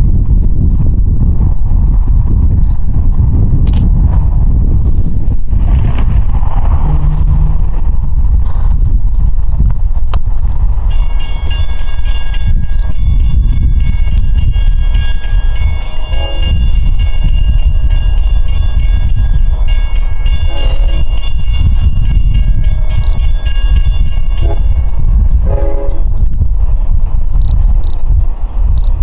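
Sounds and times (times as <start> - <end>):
diesel train rumbling past: 0.0 - 29.0
grade crossing bell ringing: 10.9 - 25.0.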